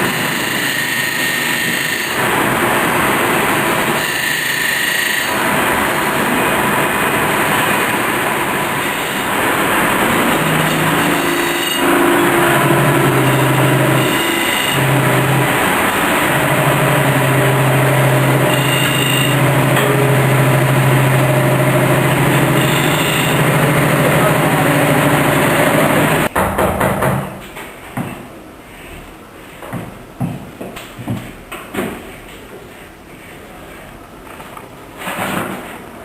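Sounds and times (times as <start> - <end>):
chainsaw carving wood: 0.0 - 5.7, 8.4 - 26.3.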